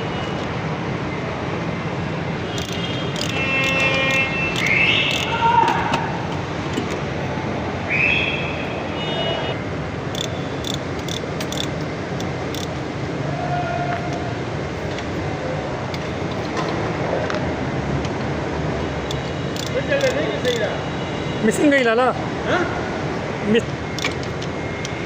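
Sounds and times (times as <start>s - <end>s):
forklift engine running: 9.7s - 13.0s.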